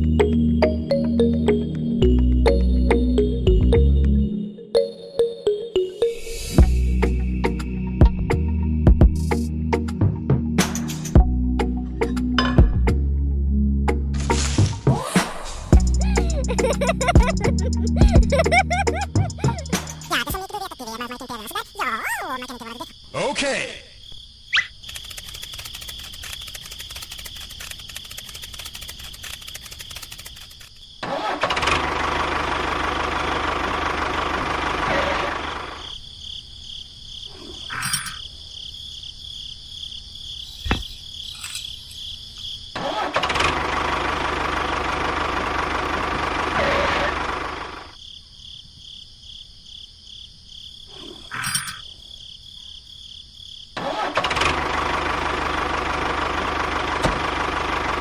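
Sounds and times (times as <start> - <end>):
crickets chirping: 4.1 - 9.4, 15.8 - 43.2, 47.1 - 54.1
sharp clicks: 24.6 - 30.8
small motor running: 24.9 - 30.6.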